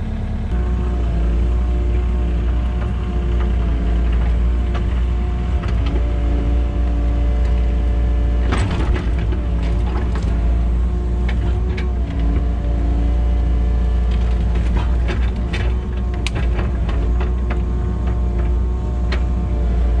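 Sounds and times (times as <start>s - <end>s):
diesel engine rumbling: 0.0s - 20.0s
sharp knocks and cracks: 8.4s - 10.6s, 14.0s - 19.4s.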